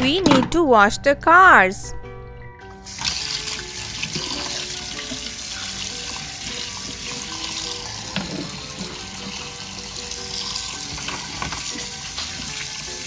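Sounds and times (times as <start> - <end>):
water running from a tap: 2.8 - 13.0.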